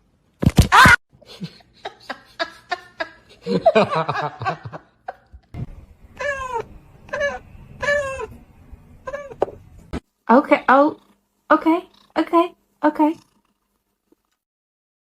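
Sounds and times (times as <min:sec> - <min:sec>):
cat meowing: 0:06.2 - 0:08.4, 0:09.0 - 0:09.5.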